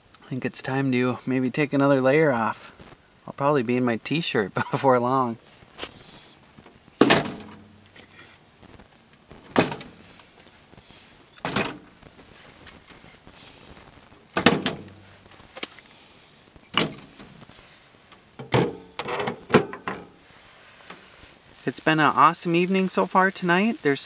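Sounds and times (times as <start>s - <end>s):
objects scraping and knocking: 9.4s - 10.0s, 18.4s - 20.2s.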